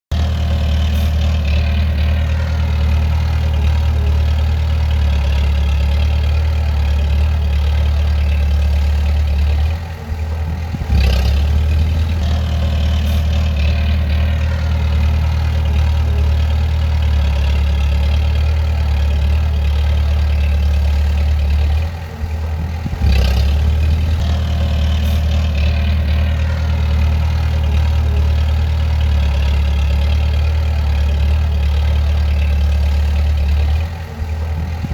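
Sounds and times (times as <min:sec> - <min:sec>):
bulldozer diesel engine running: 0:00.0 - 0:34.9.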